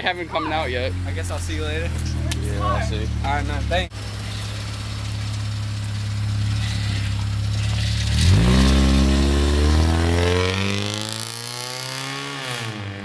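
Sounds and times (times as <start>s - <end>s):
car engine idling: 0.0s - 10.3s
engine revving up: 6.6s - 13.0s.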